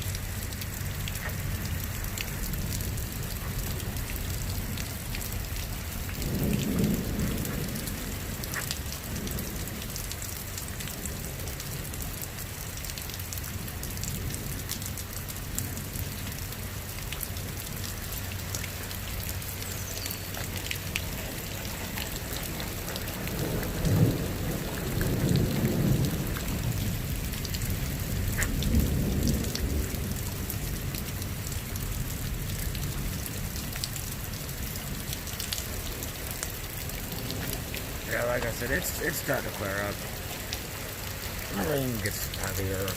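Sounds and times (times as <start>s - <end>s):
thunder rumbling: 0.0s - 10.0s, 20.4s - 33.6s, 34.6s - 42.9s
heavy rain falling: 0.0s - 42.9s.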